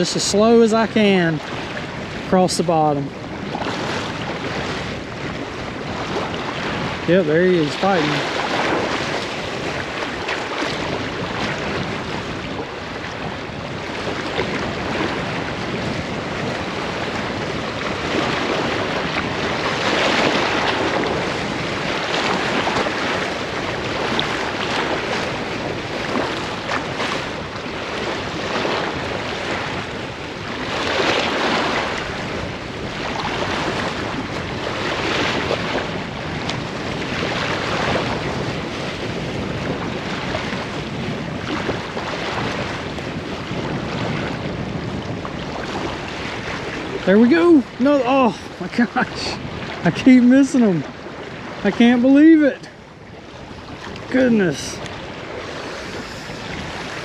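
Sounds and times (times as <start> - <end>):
waves breaking against seawall: 0.0 - 57.0
wind buffeting microphone: 0.0 - 57.0.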